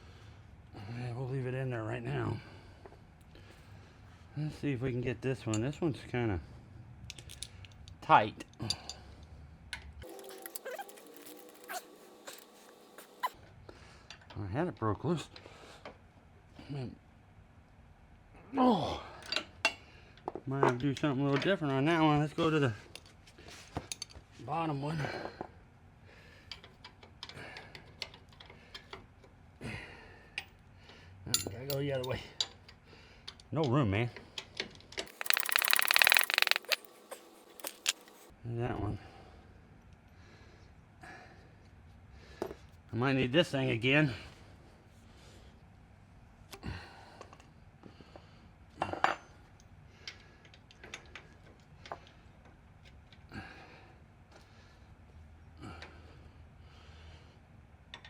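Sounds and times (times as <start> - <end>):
ratchet wrench clicking: 35.1 - 36.9
metal tools clinking on metal: 37.6 - 38.2.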